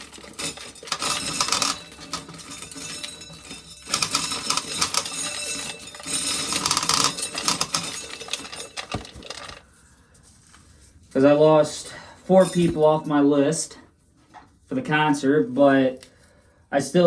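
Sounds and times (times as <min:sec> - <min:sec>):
corn kernels rattling down: 0:00.0 - 0:09.6.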